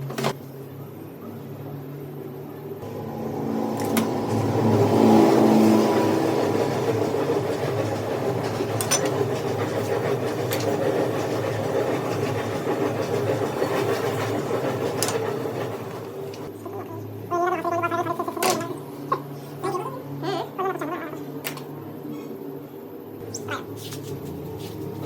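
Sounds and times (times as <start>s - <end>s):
vehicle engine running: 2.8s - 16.5s.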